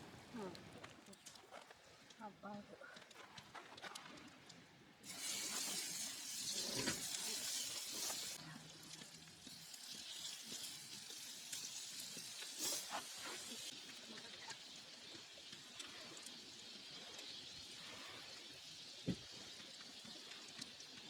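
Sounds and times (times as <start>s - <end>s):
wood fire crackles: 0.0s - 21.0s
patties sizzling on griddle: 5.0s - 21.0s.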